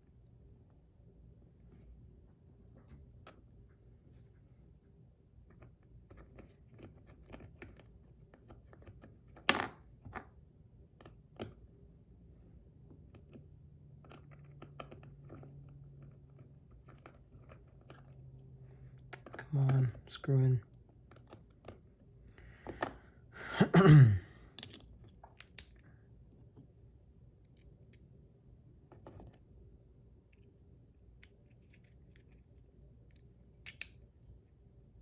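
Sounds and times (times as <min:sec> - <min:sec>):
metal toy parts clicking: 0:33.1 - 0:34.0.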